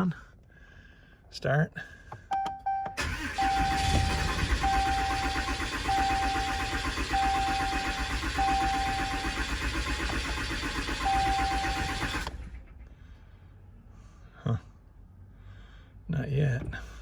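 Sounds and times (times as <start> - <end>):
electronic beeps: 2.4 - 9.4, 11.0 - 12.1
diesel engine cranking on starter: 2.9 - 13.2.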